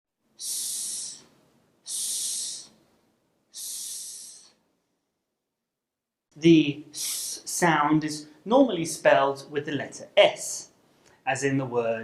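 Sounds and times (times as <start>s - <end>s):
person hissing s sound: 0.4s - 2.9s, 3.5s - 4.7s, 6.8s - 7.6s.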